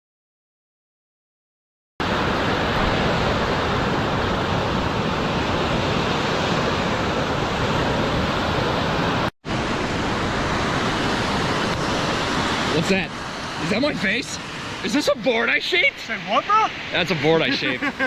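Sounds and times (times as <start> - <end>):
wind on microphone: 2.0 - 14.9
surf breaking: 2.0 - 18.0.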